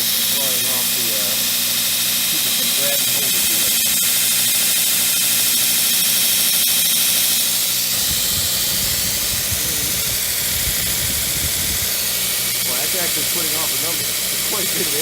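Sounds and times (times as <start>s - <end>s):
belt grinder running: 0.0s - 15.0s
motor hum: 0.0s - 15.0s
wind buffeting microphone: 8.0s - 12.0s.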